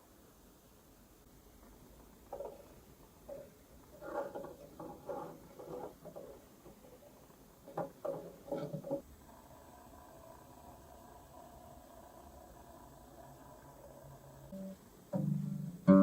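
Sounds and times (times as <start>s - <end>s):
faint steady hum: 0.0s - 16.0s
soft taps and rubbing: 1.6s - 9.0s.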